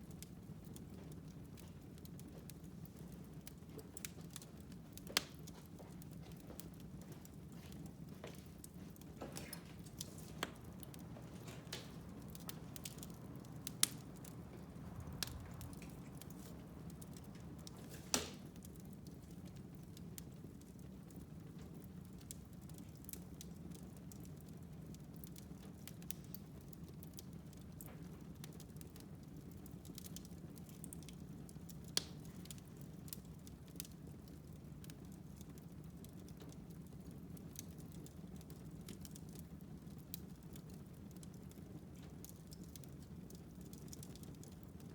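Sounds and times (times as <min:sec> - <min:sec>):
loud fire pops: 0:00.0 - 0:24.4
wood fire crackling: 0:00.0 - 0:44.9.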